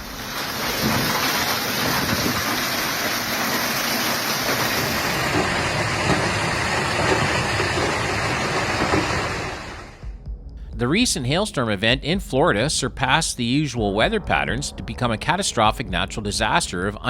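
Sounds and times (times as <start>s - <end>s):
heavy rain pelting down: 0.0s - 10.0s.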